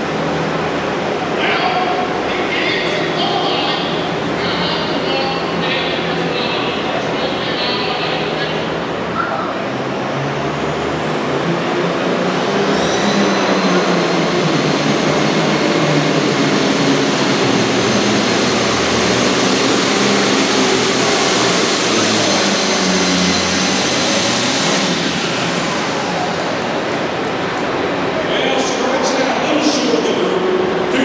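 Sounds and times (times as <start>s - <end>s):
tractor diesel engine under load: 13.4s - 29.5s.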